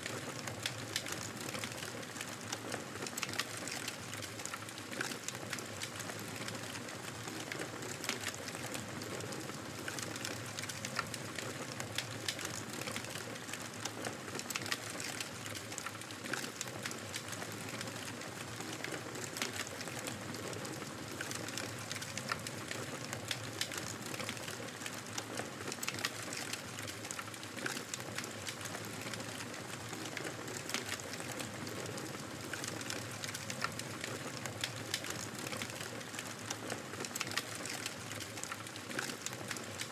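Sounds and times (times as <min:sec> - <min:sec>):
fire popping and snapping: 0:21.2 - 0:39.8.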